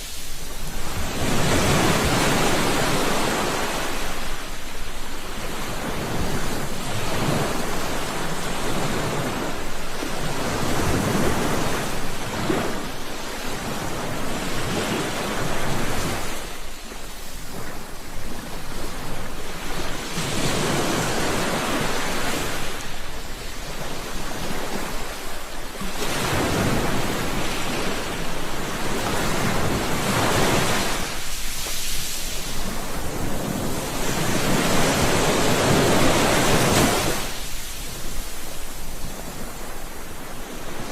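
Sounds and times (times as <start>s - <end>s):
sea waves breaking on shore: 0.0s - 40.9s.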